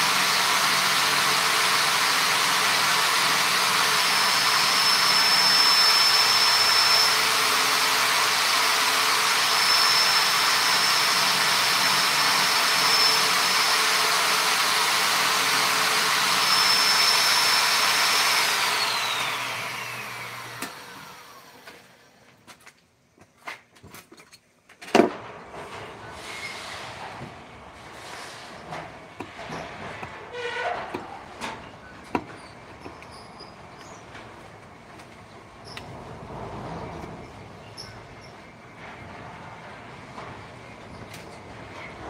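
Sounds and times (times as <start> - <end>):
power tool motor whirring: 0.0 - 22.2.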